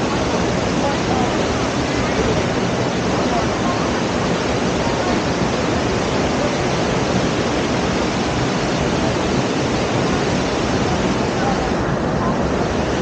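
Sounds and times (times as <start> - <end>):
waterfall: 0.0 - 13.0.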